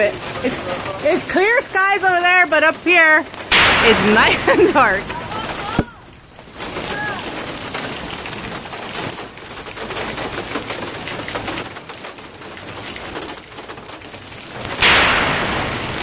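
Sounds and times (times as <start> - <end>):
heavy rain on pavement: 0.0 - 16.0
sudden loud crack: 3.5 - 6.1, 14.7 - 16.0.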